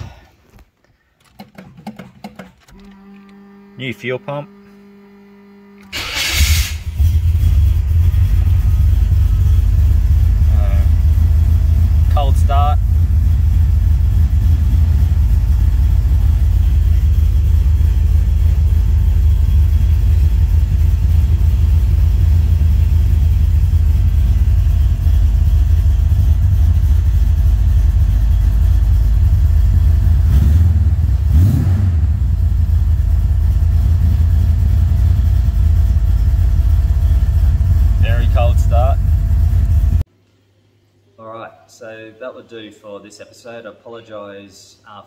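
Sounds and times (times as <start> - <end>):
car engine running: 2.7 - 40.0.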